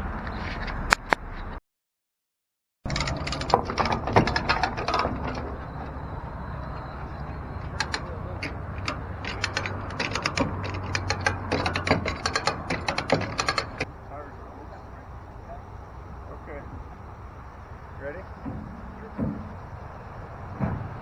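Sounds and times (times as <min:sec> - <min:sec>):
ratchet pawl clicking: 0:02.9 - 0:13.9.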